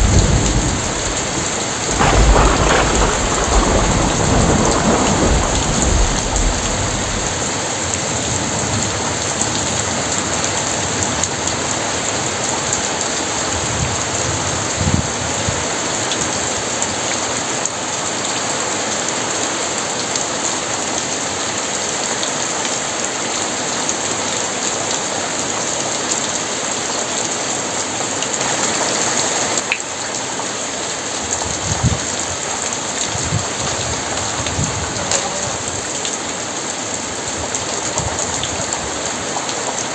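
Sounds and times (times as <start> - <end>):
low thuds: 0.0 - 7.4
thunder rumble: 0.0 - 11.8, 31.3 - 36.0
heavy rain pouring: 0.0 - 39.9.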